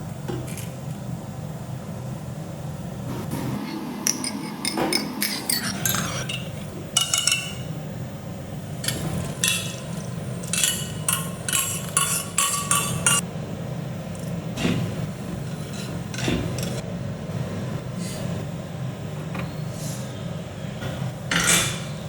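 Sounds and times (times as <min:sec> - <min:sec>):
metal utensils clinking: 0:04.0 - 0:07.8, 0:08.7 - 0:13.2, 0:14.2 - 0:16.8.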